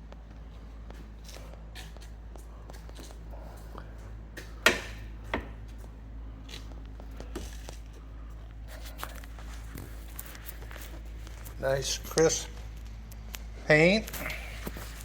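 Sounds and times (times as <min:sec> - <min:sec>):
steady low hum: 0:00.0 - 0:15.0
sharp knocks: 0:04.6 - 0:05.6.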